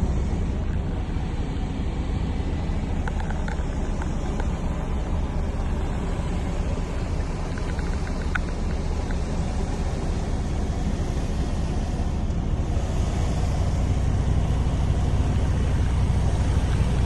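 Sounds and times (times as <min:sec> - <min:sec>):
diesel truck engine idling: 0:00.0 - 0:17.0
faint light ticks: 0:02.9 - 0:10.3.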